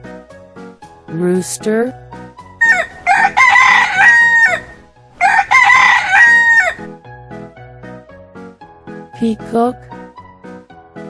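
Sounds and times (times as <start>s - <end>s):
soft background music: 0.0s - 4.3s, 7.0s - 11.0s
rooster crowing: 2.6s - 6.9s.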